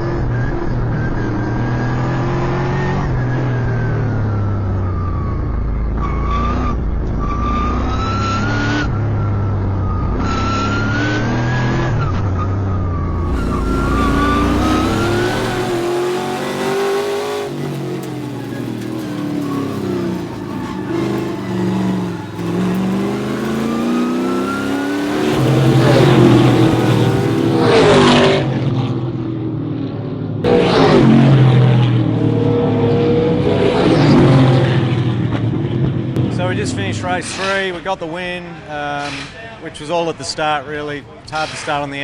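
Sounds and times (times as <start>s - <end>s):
race car engine revving: 12.9s - 37.4s.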